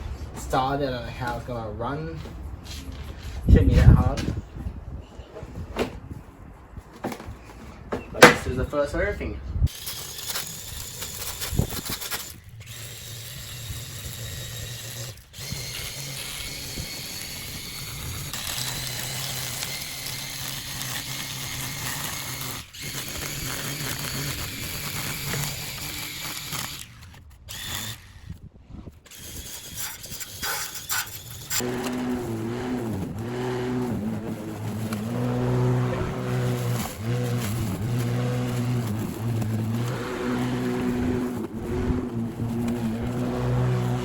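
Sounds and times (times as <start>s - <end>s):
electric lawn mower humming: 9.7s - 28.0s, 31.4s - 44.0s.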